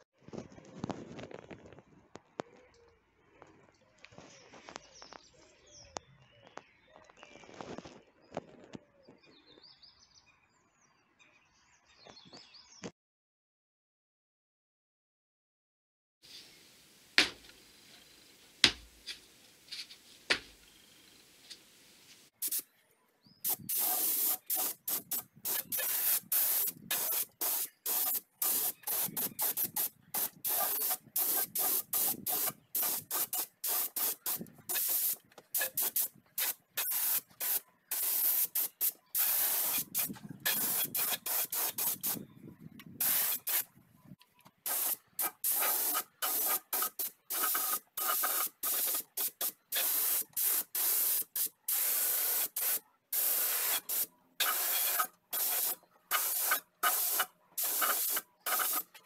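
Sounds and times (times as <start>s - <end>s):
spray paint hissing bursts: 22.4s - 22.7s, 23.4s - 42.2s, 43.0s - 43.7s, 44.6s - 59.0s.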